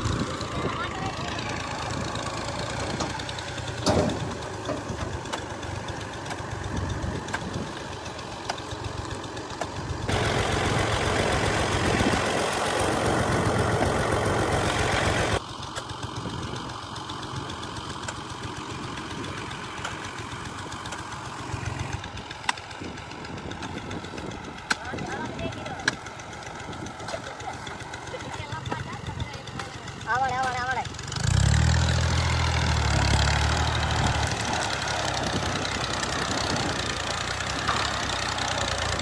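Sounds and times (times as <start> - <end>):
combine harvester running: 0.0 - 39.0.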